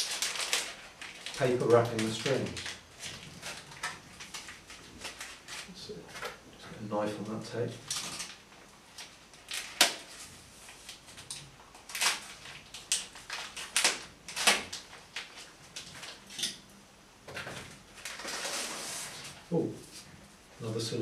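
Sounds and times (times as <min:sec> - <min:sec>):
paper wrapping crinkling and ripping: 0:00.0 - 0:06.4, 0:07.8 - 0:16.4, 0:17.8 - 0:20.0
knife cutting packing tape: 0:11.9 - 0:15.4.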